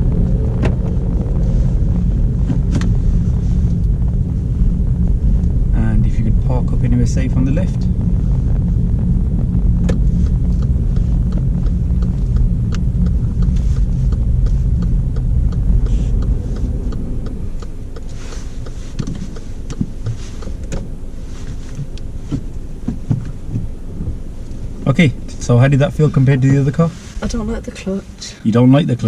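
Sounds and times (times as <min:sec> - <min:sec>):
car road and engine rumble: 0:00.0 - 0:29.0
indicator ticking: 0:05.0 - 0:21.0.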